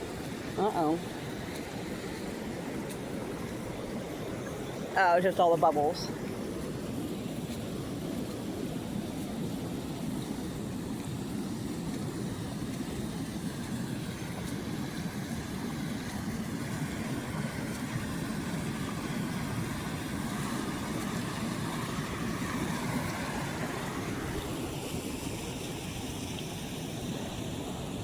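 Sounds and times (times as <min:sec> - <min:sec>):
floodwater rushing: 0:00.0 - 0:28.0.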